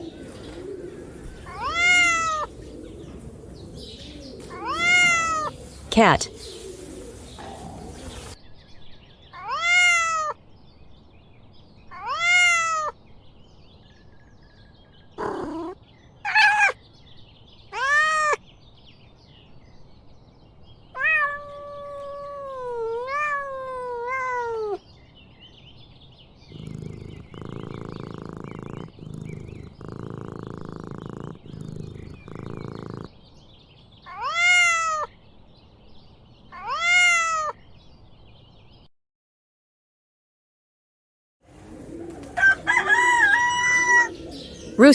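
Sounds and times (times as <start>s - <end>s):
cat meowing: 0.0s - 2.7s, 3.3s - 5.6s, 9.4s - 10.4s, 11.9s - 13.0s, 15.2s - 16.8s, 17.7s - 18.4s, 21.0s - 24.8s, 34.1s - 35.1s, 36.5s - 37.6s, 42.1s - 44.3s.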